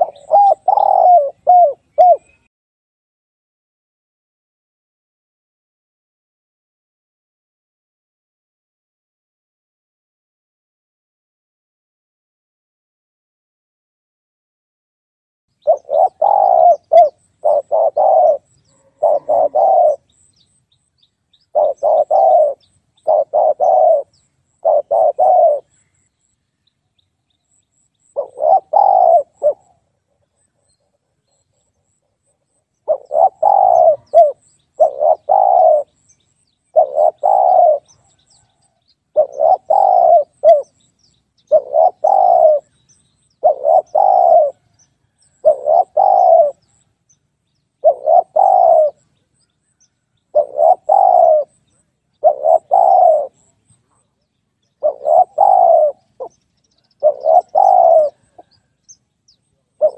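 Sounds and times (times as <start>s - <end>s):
dove cooing: 0.0s - 2.5s, 15.6s - 20.5s, 21.4s - 25.8s, 28.0s - 36.0s, 36.7s - 42.8s, 43.4s - 46.8s, 47.8s - 49.1s, 50.3s - 54.0s, 54.8s - 58.8s, 59.6s - 59.9s.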